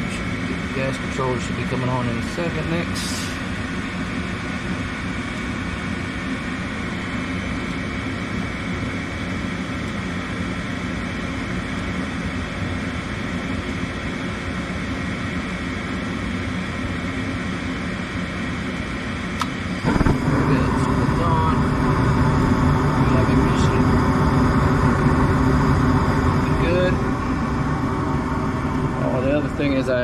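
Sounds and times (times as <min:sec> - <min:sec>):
furnace inducer motor whine: 0:00.0 - 0:30.0.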